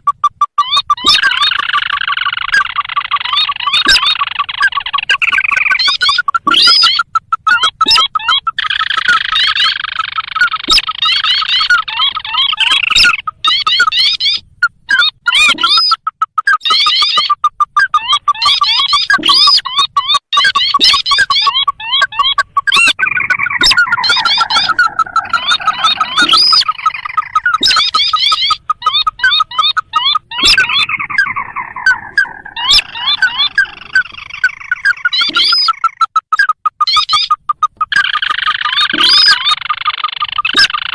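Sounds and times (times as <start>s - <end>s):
crake calls: 0.0s - 40.9s
sharp clicks: 20.2s - 40.9s
crakes calling in chorus: 20.4s - 36.0s.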